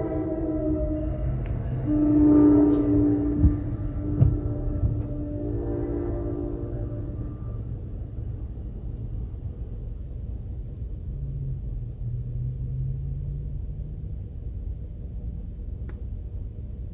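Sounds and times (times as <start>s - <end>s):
low hum: 0.0s - 11.9s
low vehicle rumble: 0.0s - 16.9s.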